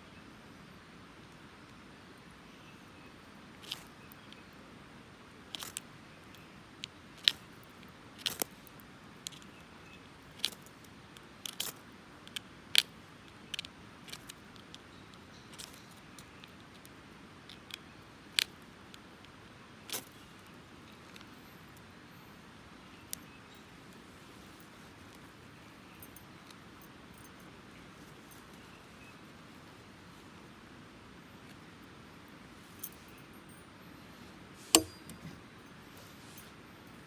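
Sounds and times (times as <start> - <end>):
low steady hiss: 0.0 - 37.0
flint striking steel clicks: 34.6 - 35.3.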